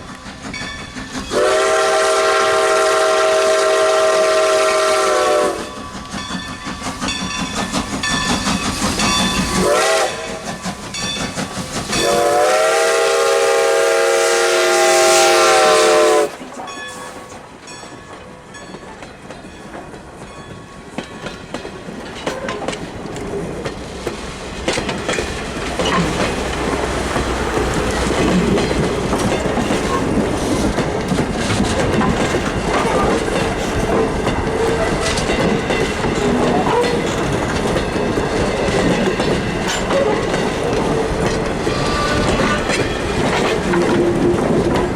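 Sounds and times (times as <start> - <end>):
locomotive exhaust beats: 0.0 - 19.5, 22.2 - 44.9
train wheels clicking over rail joints: 0.0 - 44.9
steam locomotive whistle: 1.3 - 6.0, 9.3 - 10.6, 11.9 - 17.3, 39.9 - 44.3.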